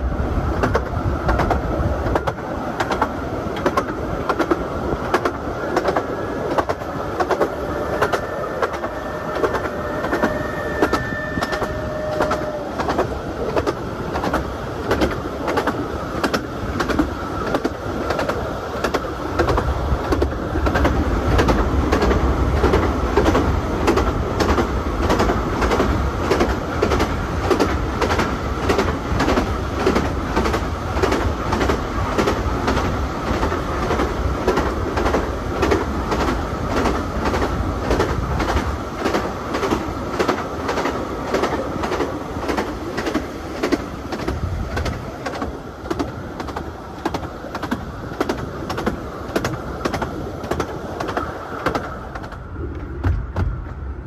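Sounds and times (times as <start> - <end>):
train running rumble: 0.0 - 54.0
train wheels clickety-clack: 0.0 - 54.0
steady high tone: 6.3 - 12.8.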